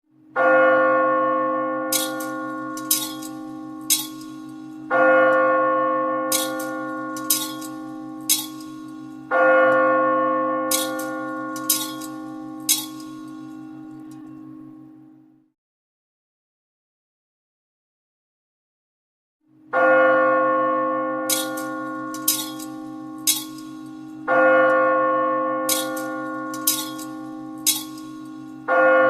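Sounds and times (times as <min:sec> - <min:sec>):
large bell ringing: 0:00.4 - 0:15.4, 0:19.6 - 0:29.0
high metallic tings: 0:02.0 - 0:04.7, 0:06.3 - 0:09.2, 0:10.7 - 0:14.4, 0:21.3 - 0:24.2, 0:25.7 - 0:28.6.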